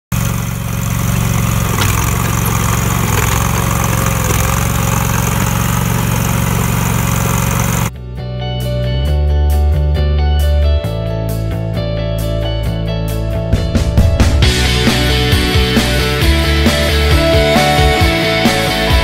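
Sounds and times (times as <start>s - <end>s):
trencher engine running: 0.0s - 7.9s, 14.4s - 19.0s
digging chain cutting soil: 0.1s - 7.9s
guitar music: 11.7s - 19.0s.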